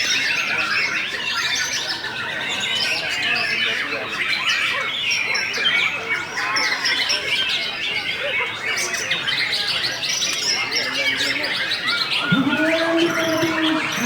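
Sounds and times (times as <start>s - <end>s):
songbirds chorus: 11.0s - 14.0s.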